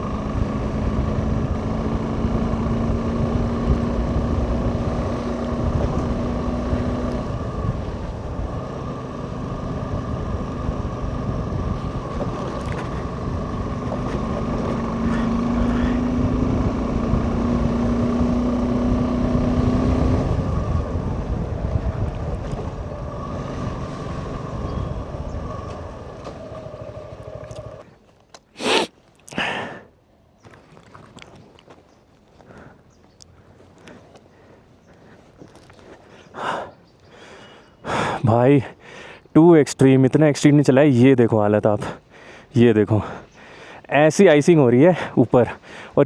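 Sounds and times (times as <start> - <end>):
wind buffeting microphone: 0.0 - 27.4
motorcycle engine running: 0.0 - 27.8.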